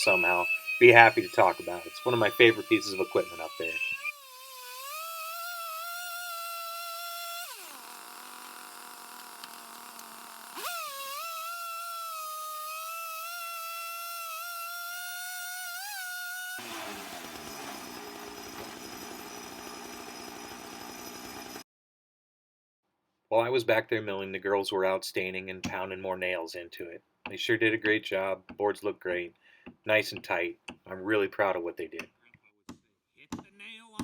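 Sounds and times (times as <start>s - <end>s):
sawmill whining: 0.0s - 21.6s.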